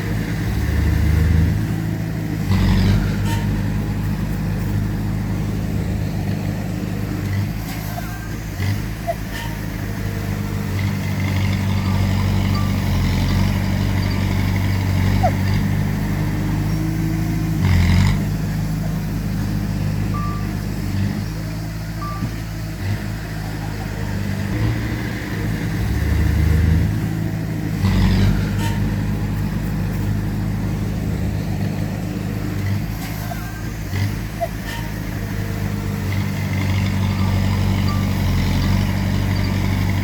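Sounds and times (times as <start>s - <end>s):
heavy diesel engines running: 0.0s - 40.0s.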